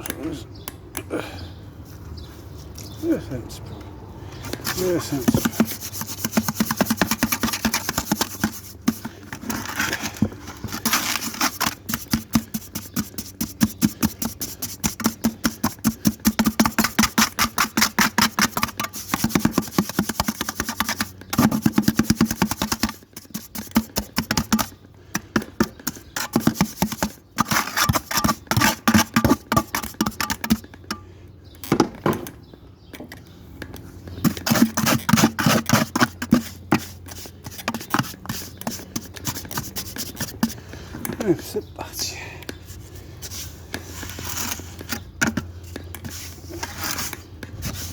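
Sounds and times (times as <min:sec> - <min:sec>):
hand scrubbing brick: 0:04.5 - 0:30.6, 0:34.2 - 0:40.6.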